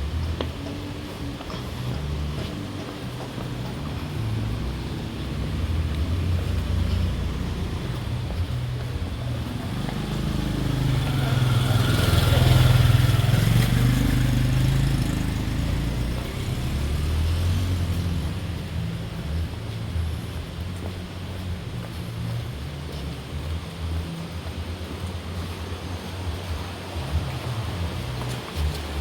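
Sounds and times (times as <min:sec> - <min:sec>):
vehicle engine passing by: 0:00.0 - 0:29.0.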